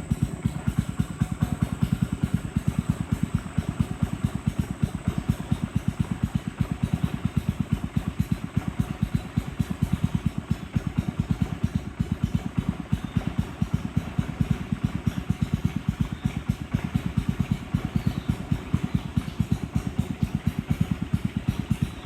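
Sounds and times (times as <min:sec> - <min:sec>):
boat engine chugging: 0:00.0 - 0:22.0.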